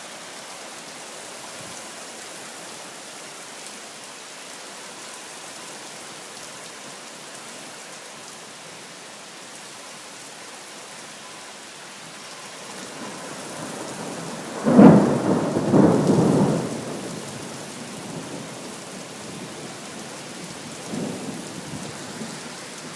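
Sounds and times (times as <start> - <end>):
rain falling: 0.0 - 22.9
thunderclap: 14.5 - 17.2.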